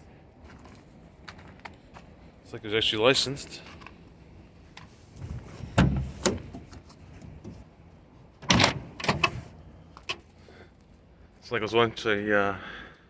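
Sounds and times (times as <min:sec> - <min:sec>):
van door metal clunks: 0:05.2 - 0:07.6, 0:08.4 - 0:09.5.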